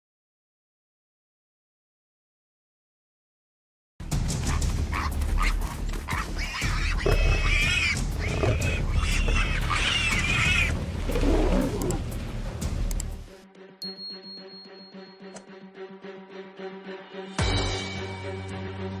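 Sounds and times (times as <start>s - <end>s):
warthog squealing: 4.4s - 12.0s
steady low rumble: 9.7s - 13.3s.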